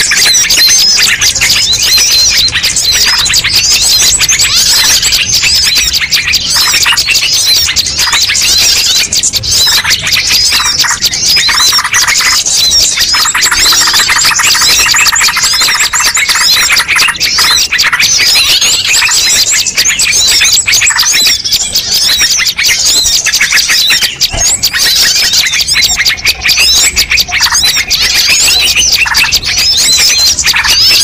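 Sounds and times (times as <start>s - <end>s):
songbirds chirping and trilling: 0.0s - 31.0s.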